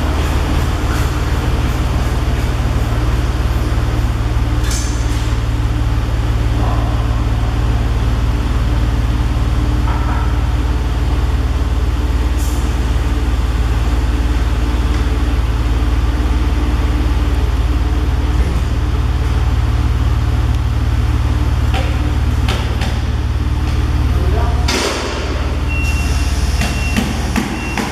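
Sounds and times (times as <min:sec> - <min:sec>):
engine droning: 0:00.0 - 0:27.9.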